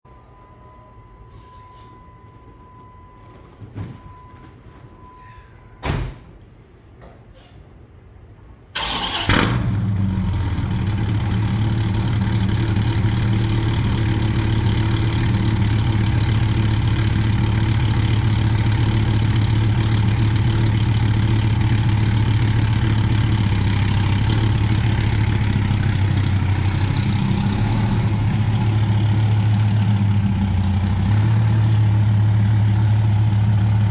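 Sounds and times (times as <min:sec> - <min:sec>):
engine starting and idling: 0:08.8 - 0:33.9.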